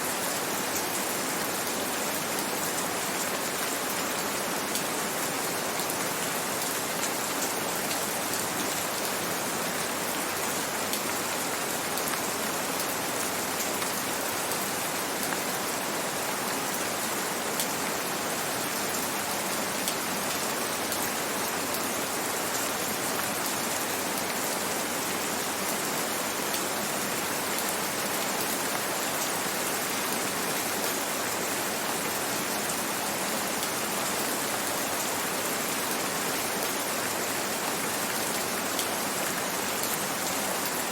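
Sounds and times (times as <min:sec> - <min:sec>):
gentle rain falling: 0:00.0 - 0:40.9.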